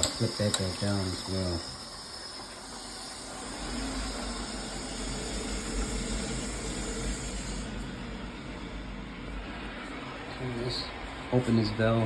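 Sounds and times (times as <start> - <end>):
water rushing into tank: 0.0 - 8.0.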